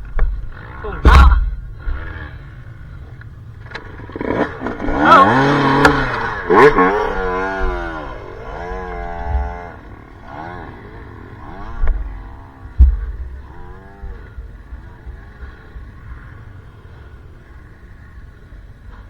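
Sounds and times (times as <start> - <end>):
dirt bike engine revving: 0.0 - 19.0
sharp knocks: 0.1 - 2.1, 12.8 - 14.5.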